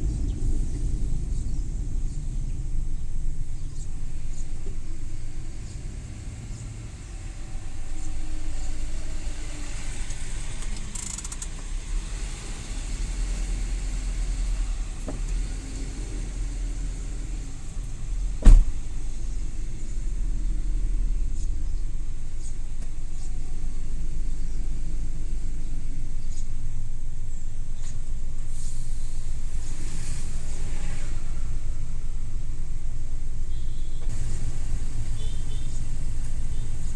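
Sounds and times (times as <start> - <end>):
van engine and road rumble: 0.0 - 36.9.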